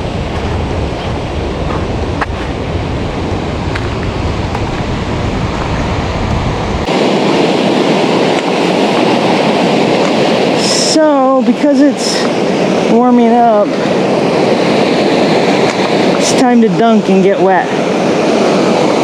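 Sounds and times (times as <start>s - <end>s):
river rapids rushing: 4.5s - 19.0s.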